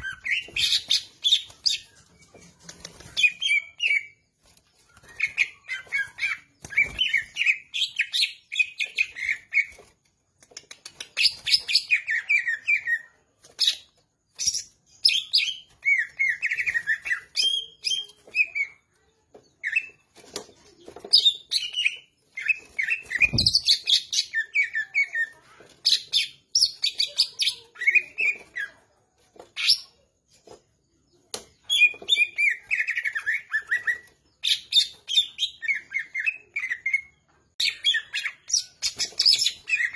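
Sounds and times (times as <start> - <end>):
bird singing chirps and warbles: 0.0 - 10.0, 11.0 - 39.9.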